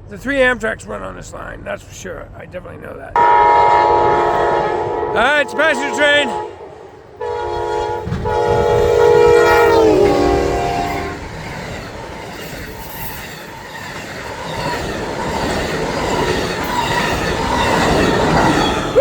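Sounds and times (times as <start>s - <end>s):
train horn chord: 3.2s - 11.2s.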